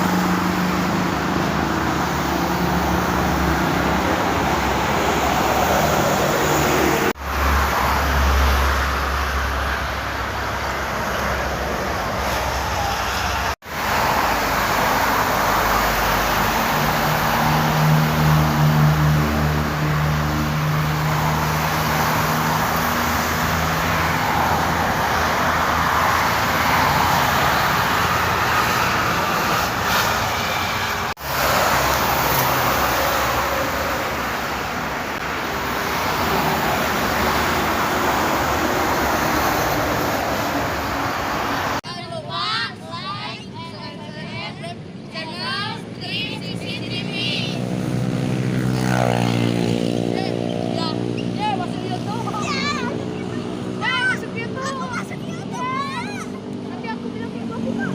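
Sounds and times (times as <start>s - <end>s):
heavy vehicle engine drone: 0.0s - 41.8s
vehicles passing at speed: 0.0s - 57.9s.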